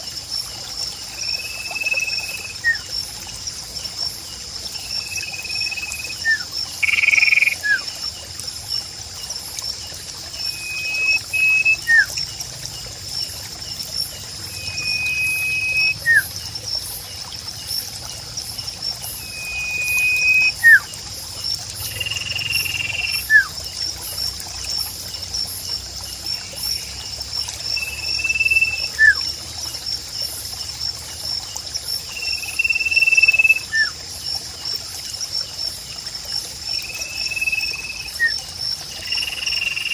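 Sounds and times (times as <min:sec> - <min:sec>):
trickling water: 0:00.0 - 0:39.9
high-pitched insect chirr: 0:01.0 - 0:29.4, 0:31.9 - 0:34.0, 0:36.7 - 0:39.9
bird singing whistled phrase: 0:10.5 - 0:12.1, 0:14.6 - 0:16.3, 0:19.2 - 0:20.9, 0:22.9 - 0:23.5, 0:27.9 - 0:29.2.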